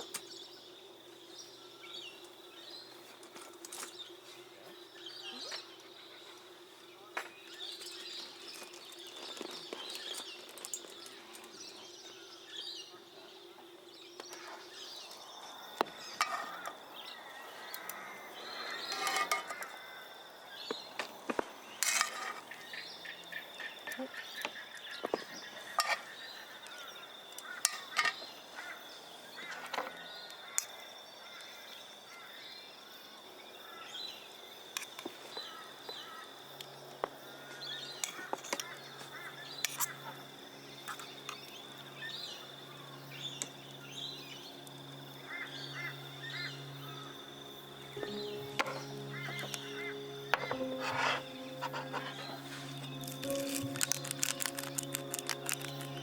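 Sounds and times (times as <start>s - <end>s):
birds calling and warbling: 0.0s - 21.0s, 37.0s - 56.0s
steady high-pitched drone: 37.8s - 56.0s.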